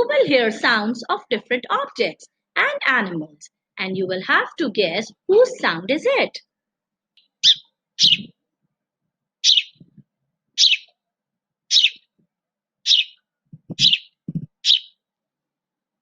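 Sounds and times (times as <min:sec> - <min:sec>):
bird chirping: 0:07.2 - 0:08.4, 0:09.4 - 0:10.0, 0:10.6 - 0:11.0, 0:11.7 - 0:12.2, 0:12.8 - 0:15.1.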